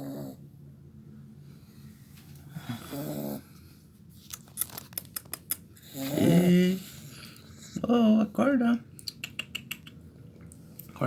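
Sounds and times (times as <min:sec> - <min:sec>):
puppy snoring: 0:00.0 - 0:00.4, 0:02.6 - 0:03.5, 0:05.8 - 0:07.8.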